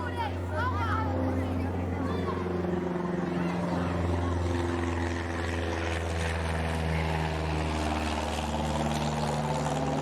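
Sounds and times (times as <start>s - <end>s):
engine droning: 0.0s - 10.0s.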